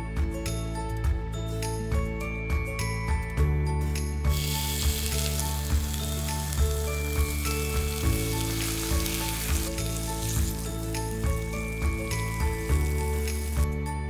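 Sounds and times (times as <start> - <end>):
background music with soft beat: 0.0 - 14.0
meat sizzling in hot oil: 4.3 - 13.7.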